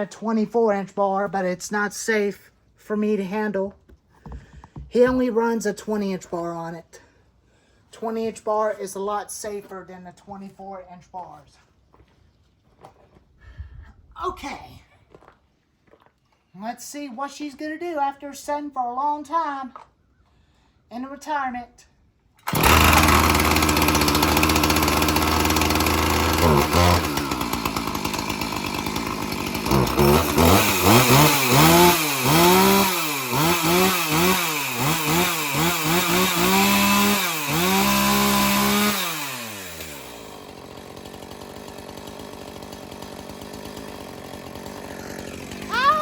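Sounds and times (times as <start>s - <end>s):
chainsaw engine revving: 22.4s - 46.0s.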